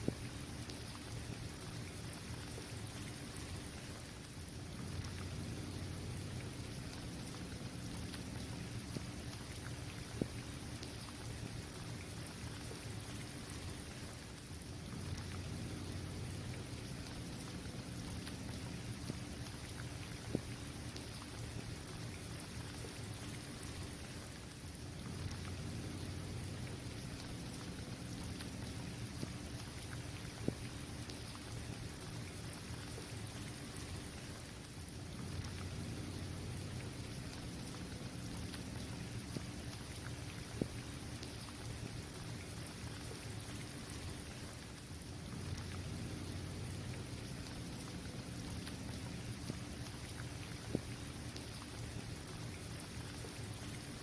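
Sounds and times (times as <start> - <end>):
rain falling on a court: 0.0 - 54.0
low steady rumble: 0.1 - 50.9.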